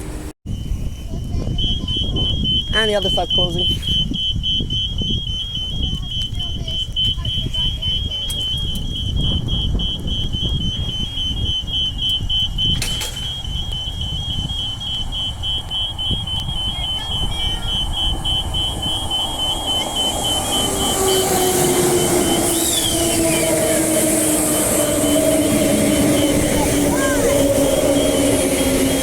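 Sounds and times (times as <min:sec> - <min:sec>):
electric train approaching: 0:00.0 - 0:29.0
high-pitched electronic warning beeping: 0:00.5 - 0:29.0.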